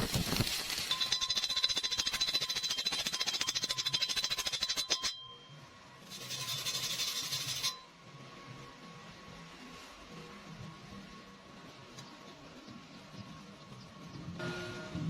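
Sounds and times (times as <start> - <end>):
welding arc crackling and hissing: 0.0 - 3.4.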